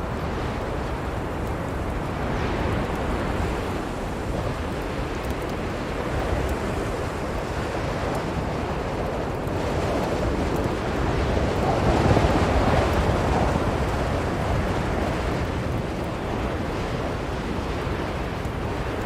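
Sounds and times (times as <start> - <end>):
blizzard wind blowing: 0.0 - 19.0.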